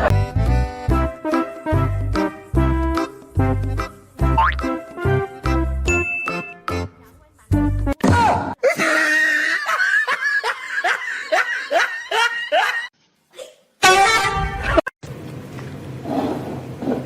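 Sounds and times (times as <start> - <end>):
person laughing: 8.6 - 13.6.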